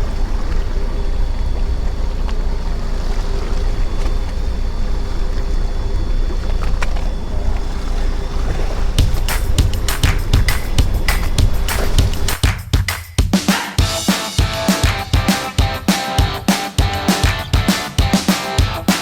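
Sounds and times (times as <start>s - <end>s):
wind: 0.0s - 12.4s
boat engine rumbling: 0.0s - 12.5s
water noise: 0.0s - 12.6s, 13.5s - 19.0s.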